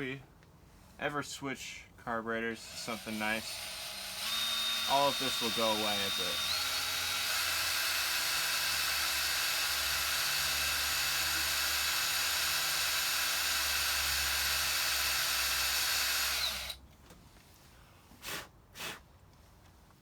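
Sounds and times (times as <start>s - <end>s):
electric drill boring through metal: 2.6s - 16.8s.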